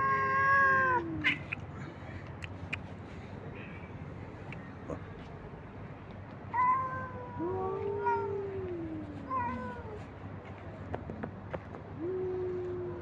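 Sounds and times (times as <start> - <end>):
cats meowing: 0.0 - 1.6, 6.5 - 10.0.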